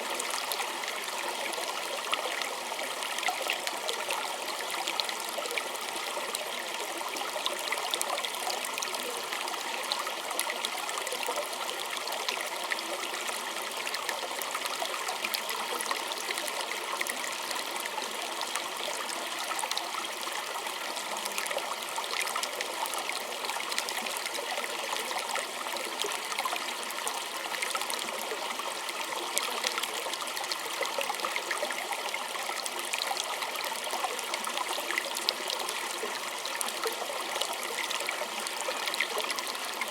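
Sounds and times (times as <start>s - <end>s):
creek trickling over stones: 0.0s - 39.9s.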